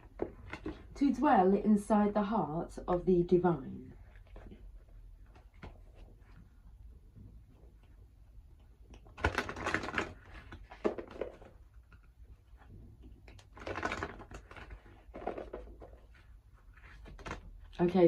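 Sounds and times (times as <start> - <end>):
cards being shuffled: 13.2 - 17.8.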